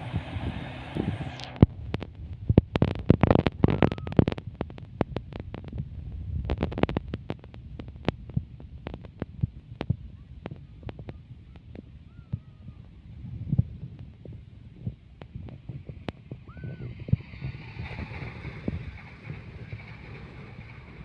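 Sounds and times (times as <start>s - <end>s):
low train rumble: 0.0s - 21.0s
wheels clacking over rail joints: 15.3s - 21.0s
train rushing past: 16.5s - 21.0s.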